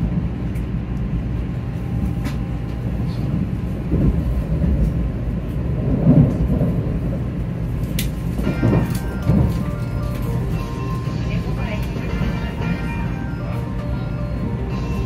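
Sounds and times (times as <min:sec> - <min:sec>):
train rumble inside cabin: 0:00.0 - 0:15.0.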